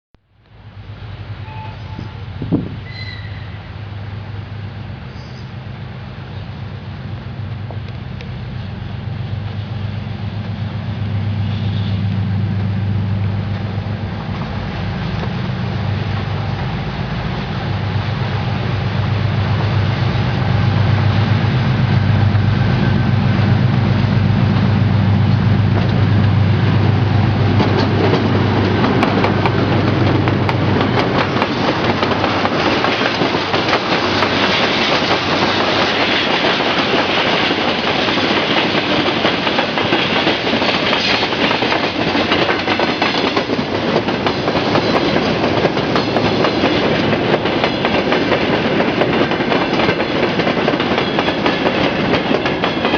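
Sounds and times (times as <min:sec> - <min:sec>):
diesel locomotive engine drone: 0:00.2 - 0:52.9
train wheels clattering on rail joints: 0:22.8 - 0:52.9.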